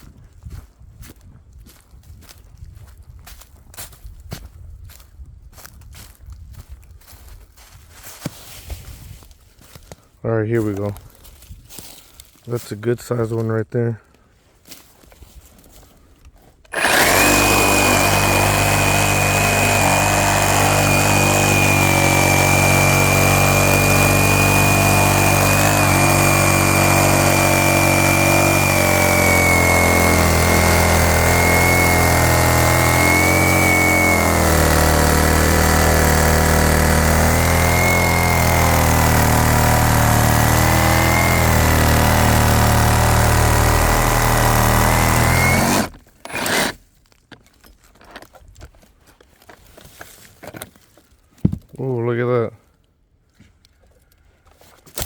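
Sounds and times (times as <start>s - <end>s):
reciprocating saw cutting wood: 16.7s - 46.8s.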